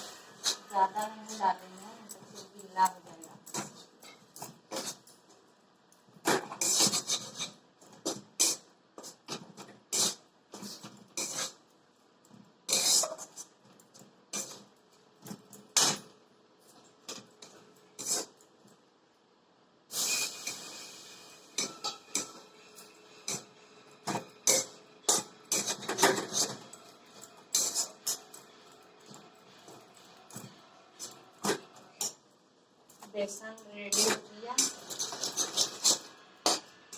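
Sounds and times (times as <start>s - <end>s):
utensil scraping a pan: 6.3s - 11.6s, 12.7s - 13.5s, 18.0s - 18.3s, 21.5s - 28.4s, 33.9s - 36.7s.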